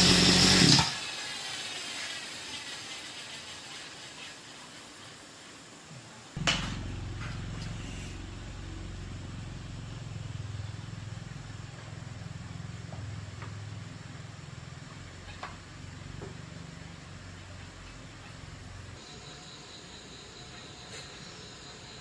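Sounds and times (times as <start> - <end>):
motorcycle engine idling: 6.4 - 19.0.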